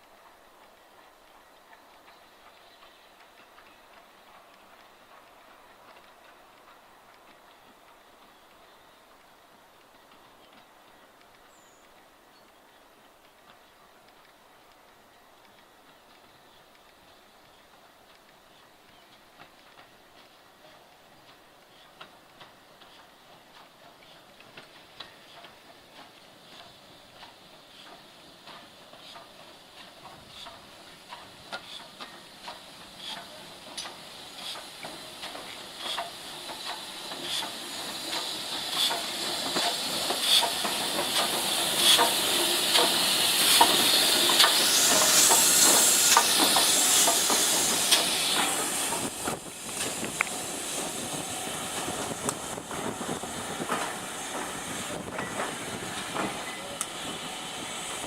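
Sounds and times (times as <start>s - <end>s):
rhythmic train clicks: 0.0s - 58.0s
steam locomotive passing: 0.0s - 58.0s
loud steam hiss: 21.2s - 58.0s.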